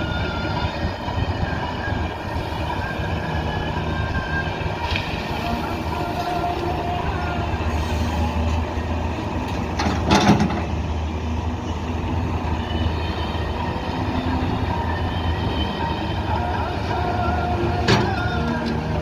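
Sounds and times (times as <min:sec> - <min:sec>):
diesel excavator engine rumbling: 0:00.0 - 0:19.0
clatter or scrape: 0:09.8 - 0:10.7.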